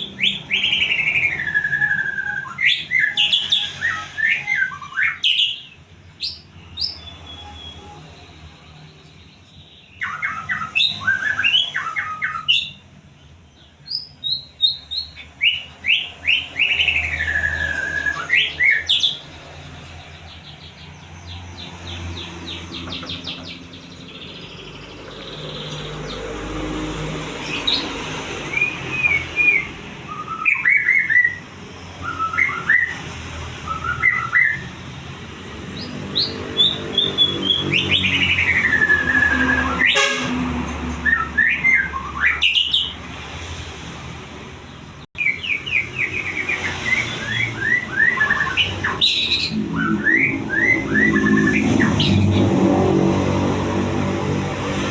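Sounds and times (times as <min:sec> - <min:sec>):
songbird singing: 0:00.0 - 0:43.3, 0:44.4 - 0:54.9.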